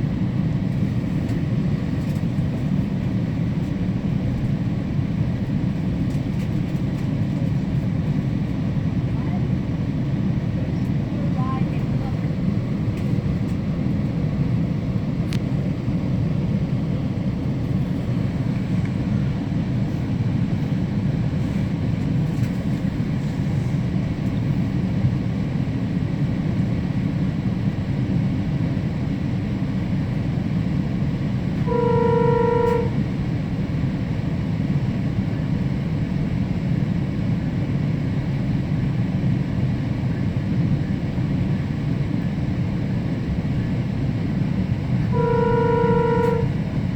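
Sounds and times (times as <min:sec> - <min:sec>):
train rumbling: 0:00.0 - 0:46.9
horn-like tone: 0:31.6 - 0:33.1, 0:45.0 - 0:46.7.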